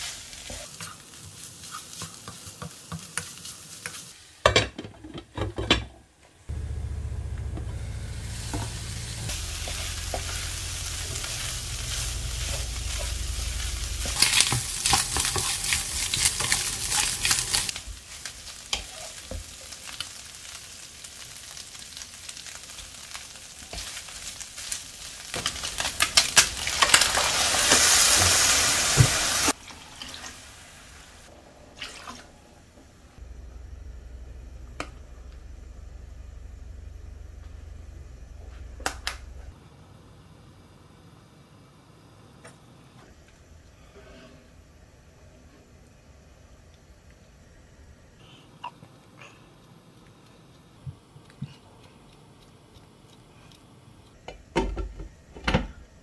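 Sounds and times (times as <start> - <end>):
meat sizzling in a frying pan: 0.0 - 4.3, 8.0 - 31.3
wooden spoon scraping a pan: 14.0 - 17.7.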